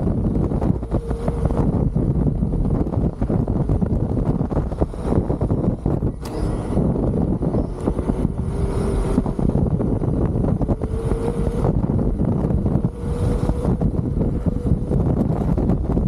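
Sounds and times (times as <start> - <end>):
wind rumbling on microphone: 0.0 - 16.0
electric motor whine: 4.7 - 16.0.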